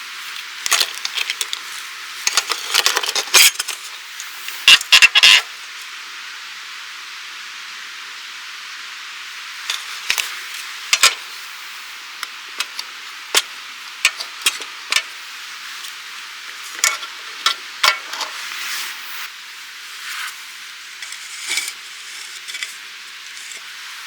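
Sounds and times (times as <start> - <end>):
camp gear clicks and knocks: 2.2 - 3.9.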